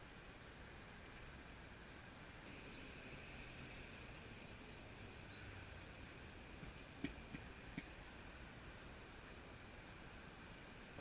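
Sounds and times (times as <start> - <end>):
high bird chirps: 2.4 - 3.1.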